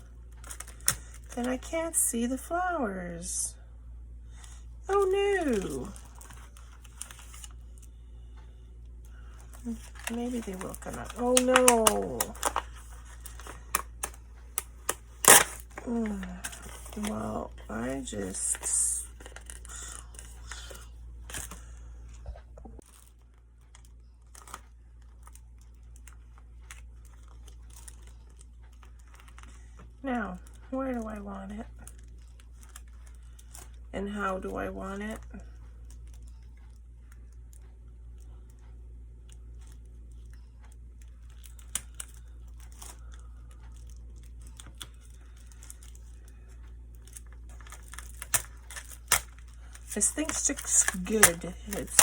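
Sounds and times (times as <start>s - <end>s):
sticker crinkling and rustling: 0.0s - 2.3s, 4.3s - 8.3s, 9.0s - 52.0s
low steady hum: 0.0s - 52.0s
sticker sheet rustling: 9.6s - 20.8s, 43.6s - 52.0s.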